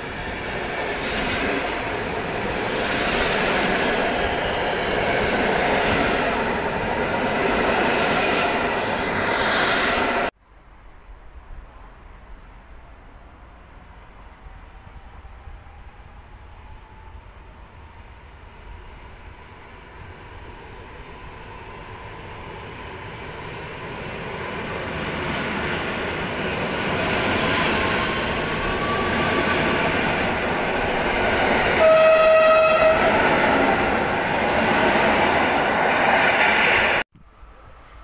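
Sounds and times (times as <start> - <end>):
electric train running past: 0.0 - 10.3, 11.0 - 38.0
train horn blast: 31.7 - 33.3.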